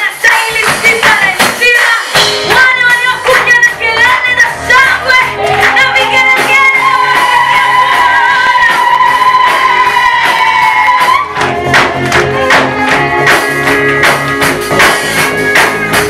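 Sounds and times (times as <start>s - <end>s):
band accompaniment: 0.0s - 16.0s.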